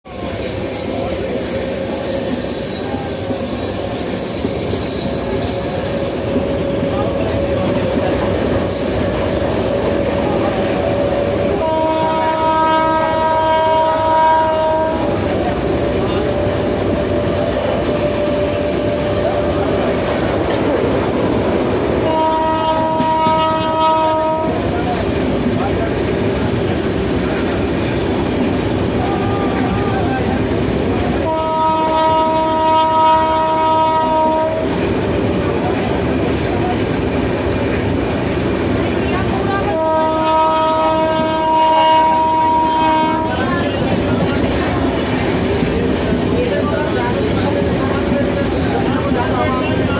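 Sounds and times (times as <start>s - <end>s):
wheels rumbling on rail: 0.0s - 49.9s
multi-tone train horn: 3.4s - 21.1s, 21.8s - 25.1s, 28.7s - 35.0s, 39.0s - 45.3s
train horn chord: 11.5s - 15.3s, 22.0s - 24.6s, 31.2s - 34.8s, 39.7s - 43.4s.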